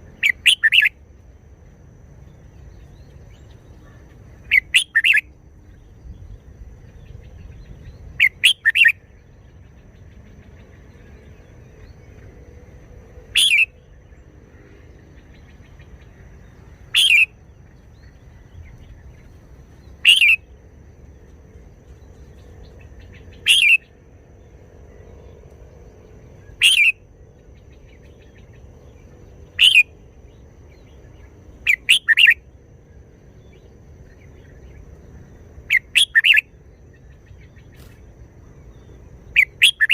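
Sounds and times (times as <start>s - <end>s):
bird singing short phrases: 0.1s - 0.9s, 2.8s - 6.2s, 7.0s - 9.1s, 13.3s - 13.9s, 16.7s - 19.3s, 19.9s - 20.4s, 22.8s - 24.0s, 26.4s - 26.9s, 27.7s - 29.9s, 30.7s - 32.4s, 35.7s - 38.0s, 38.8s - 39.9s.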